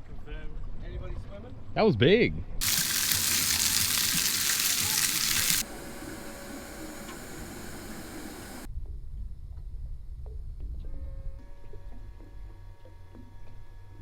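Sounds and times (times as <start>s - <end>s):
rushing water hiss: 2.6s - 8.7s.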